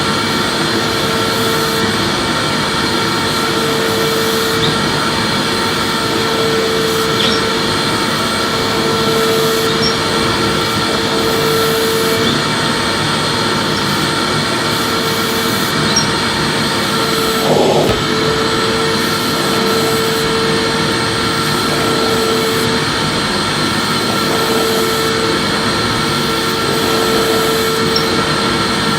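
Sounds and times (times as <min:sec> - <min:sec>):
vacuum cleaner running: 0:00.0 - 0:28.9
bump: 0:17.4 - 0:18.2.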